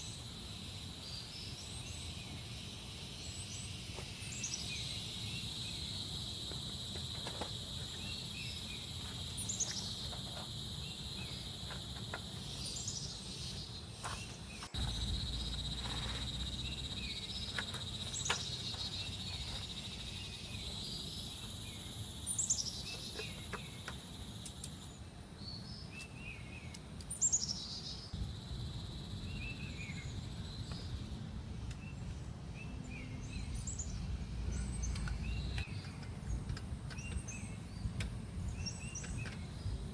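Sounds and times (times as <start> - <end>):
birds chirping: 0.0 - 39.9
high-pitched insect drone: 14.8 - 22.6.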